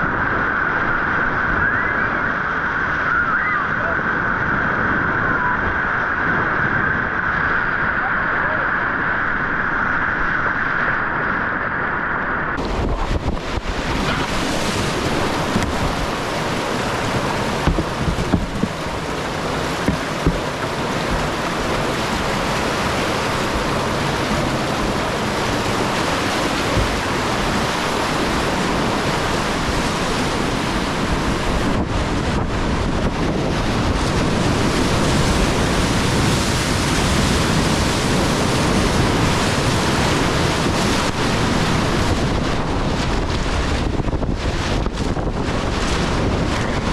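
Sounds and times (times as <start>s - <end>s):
wind buffeting microphone: 0.0s - 46.9s
whitewater rushing: 10.1s - 46.9s
sharp knocks: 17.2s - 18.7s, 19.8s - 20.4s.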